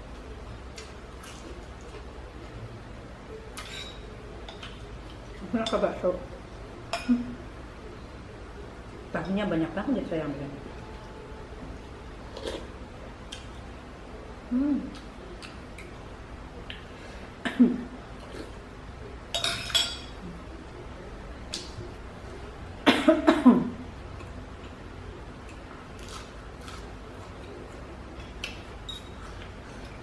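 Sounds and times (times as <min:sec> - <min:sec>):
spoon clinking against bowl: 0:19.3 - 0:20.2.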